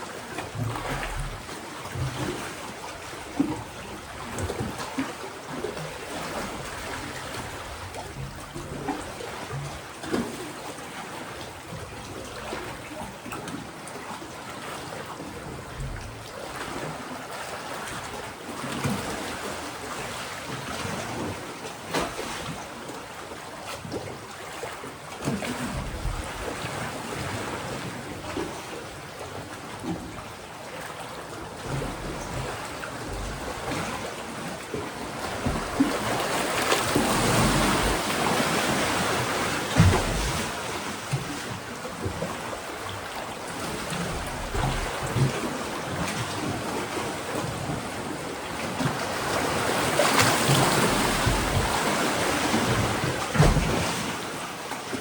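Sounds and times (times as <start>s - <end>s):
waves washing against rocky shore: 31.4s - 55.0s.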